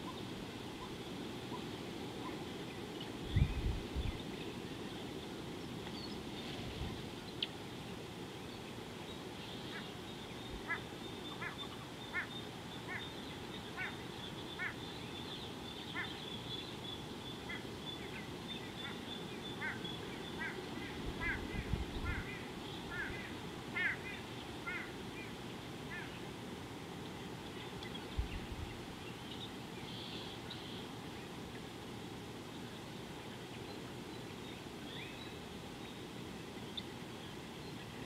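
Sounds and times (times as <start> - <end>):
bird calling: 9.4 - 16.7, 17.3 - 25.3.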